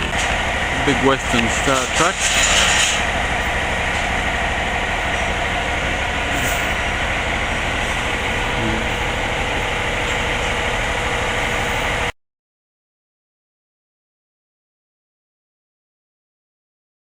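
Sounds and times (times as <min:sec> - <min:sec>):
diesel truck engine idling: 0:00.0 - 0:12.1.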